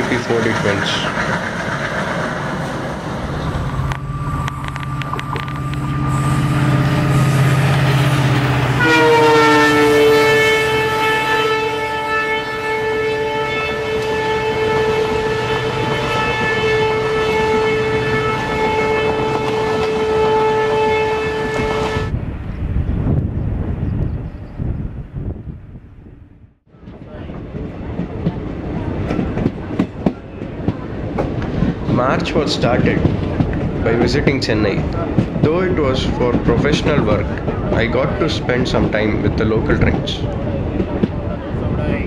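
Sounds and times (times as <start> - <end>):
rail clatter: 0.0 - 20.6, 26.8 - 42.0
locomotive engine humming: 0.0 - 22.4
locomotive horn blast: 3.5 - 22.2.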